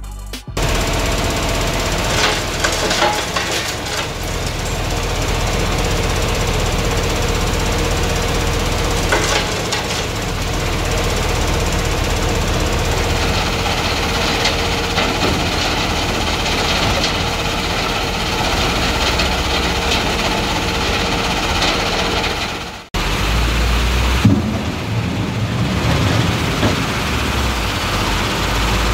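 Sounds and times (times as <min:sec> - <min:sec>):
screening plant mechanical rattle: 0:00.6 - 0:23.3.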